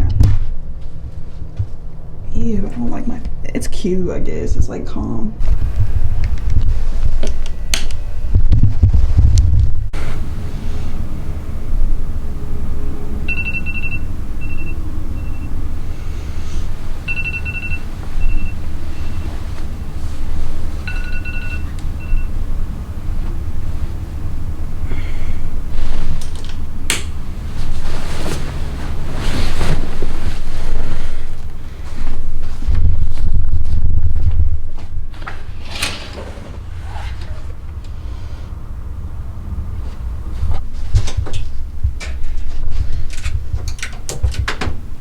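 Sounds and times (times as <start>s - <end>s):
steady low rumble: 0.0s - 45.0s
electronic beep pattern: 13.3s - 15.5s, 17.1s - 19.2s, 20.8s - 22.4s.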